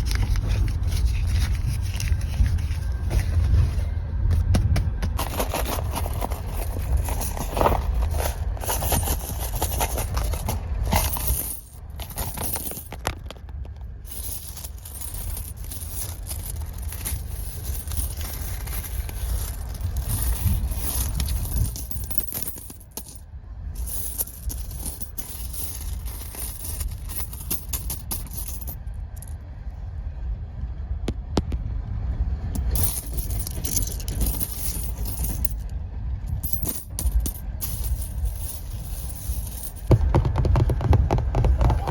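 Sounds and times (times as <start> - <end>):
moving train rumble: 0.0 - 41.9
small objects clicking and knocking: 5.1 - 23.2.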